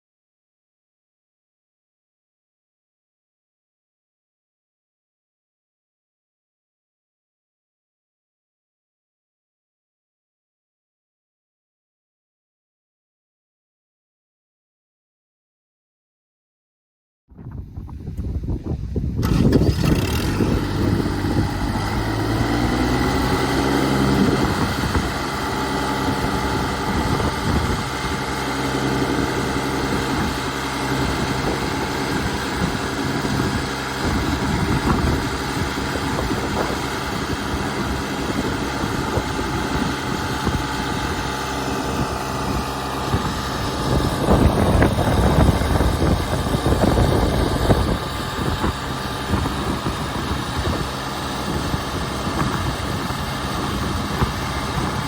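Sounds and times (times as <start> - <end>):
tractor diesel engine running: 19.2 - 55.0.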